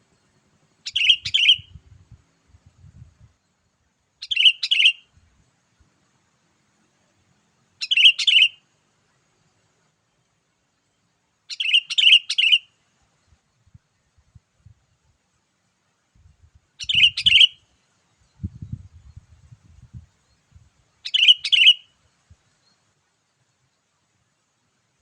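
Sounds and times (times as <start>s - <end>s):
bulbul singing: 0.8s - 2.0s, 4.2s - 5.1s, 7.8s - 8.6s, 16.8s - 17.6s, 21.0s - 21.9s.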